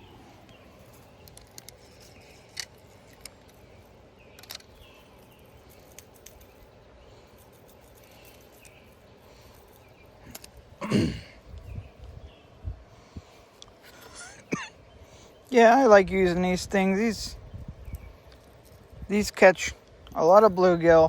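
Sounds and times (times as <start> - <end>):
low outdoor hiss: 0.0 - 21.0
small clicks: 4.3 - 6.6.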